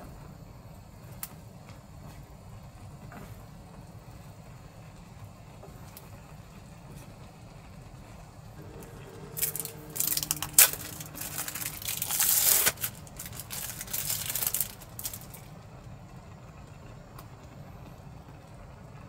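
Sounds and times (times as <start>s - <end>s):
low background hum: 0.0s - 19.0s
crinkling and rustling: 8.6s - 15.5s
sharp crackle: 8.6s - 15.5s.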